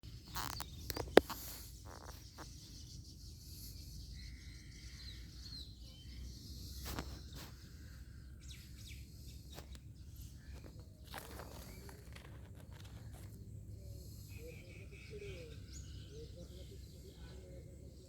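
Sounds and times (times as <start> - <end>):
bird chirps: 0.1 - 18.0
high insect hiss: 0.2 - 2.7
sharp clicks: 0.3 - 2.3.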